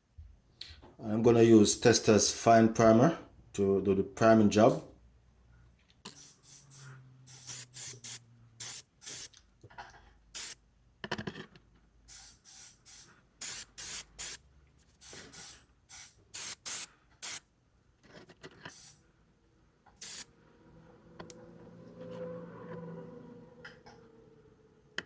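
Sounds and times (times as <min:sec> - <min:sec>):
aerosol can spraying bursts: 0:06.1 - 0:09.3, 0:10.4 - 0:10.6, 0:12.1 - 0:17.4, 0:18.7 - 0:19.0, 0:20.0 - 0:20.3.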